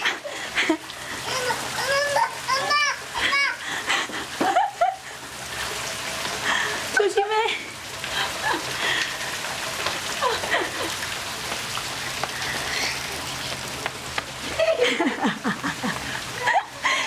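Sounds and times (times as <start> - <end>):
rain on concrete: 0.0 - 17.0
toddler vocal noises: 1.2 - 3.6.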